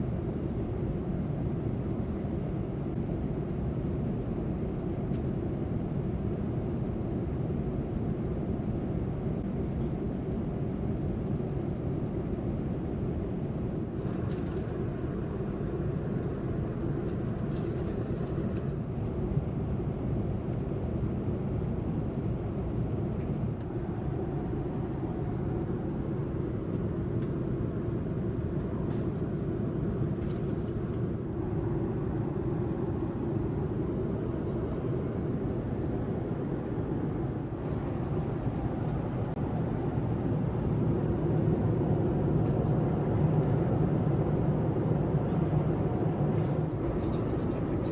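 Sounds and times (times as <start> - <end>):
airliner cabin rumble: 0.1 - 47.9.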